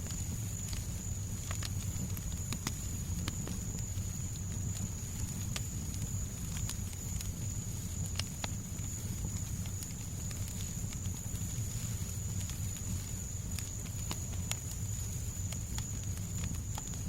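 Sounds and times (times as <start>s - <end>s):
fire popping: 0.0s - 17.0s
fireplace crackling: 0.0s - 17.0s.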